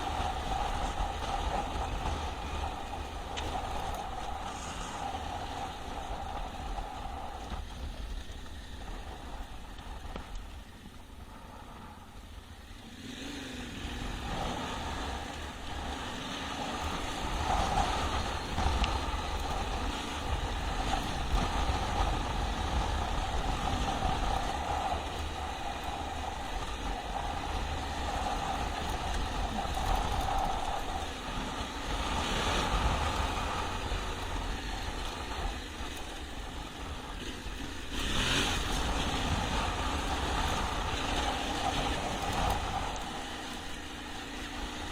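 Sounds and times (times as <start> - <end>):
motorcycle engine revving: 12.3 - 44.9.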